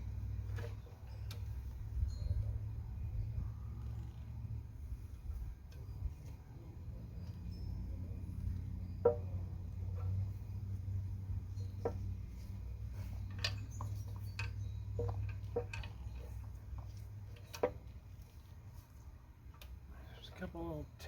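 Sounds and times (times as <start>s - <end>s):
steady low hum: 0.0s - 21.0s
metallic clinks of tools: 11.4s - 16.8s.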